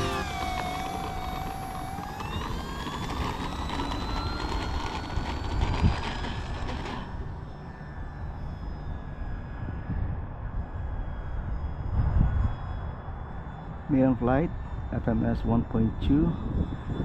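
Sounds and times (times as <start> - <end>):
electric motor whining: 0.0 - 8.4
wind rumble on microphone: 0.2 - 7.4, 8.2 - 17.0.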